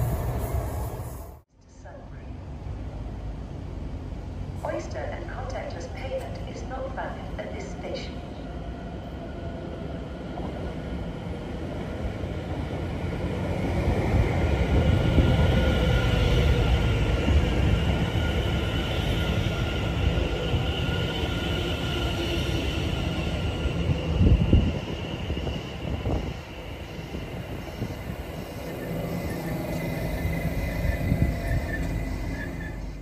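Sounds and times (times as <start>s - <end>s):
train wheels rumbling on rails: 0.0s - 1.4s, 10.2s - 33.0s.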